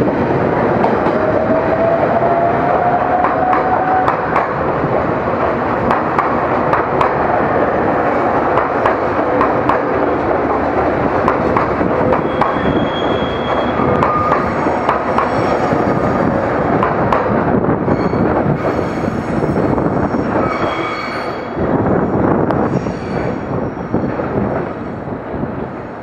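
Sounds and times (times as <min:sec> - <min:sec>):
train wheels rumbling on rails: 0:00.0 - 0:26.0
wheels clacking over rail joints: 0:02.8 - 0:18.8
thin wheel squeals: 0:12.3 - 0:14.5.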